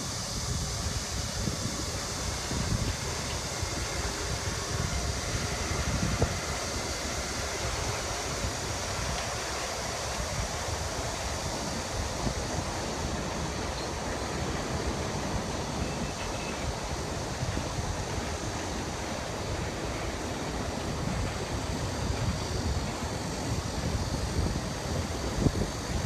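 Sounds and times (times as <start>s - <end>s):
freight train rolling across bridge: 0.0s - 26.0s
wind on microphone: 0.0s - 26.0s.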